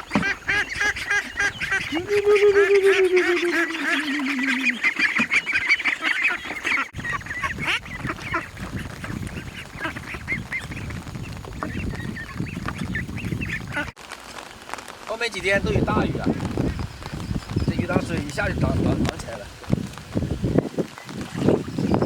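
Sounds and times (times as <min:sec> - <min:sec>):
ducks honking and quacking: 0:00.0 - 0:14.0.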